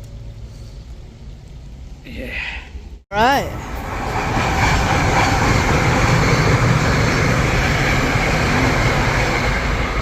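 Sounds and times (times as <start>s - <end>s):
train rumbling and rattling: 3.3s - 10.0s.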